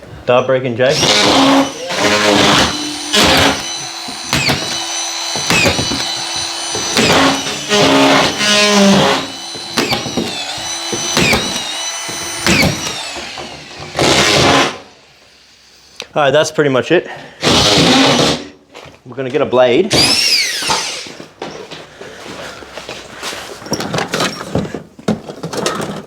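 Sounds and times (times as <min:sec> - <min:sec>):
drill driving screws: 0:00.9 - 0:15.0, 0:17.4 - 0:18.4, 0:19.9 - 0:21.2.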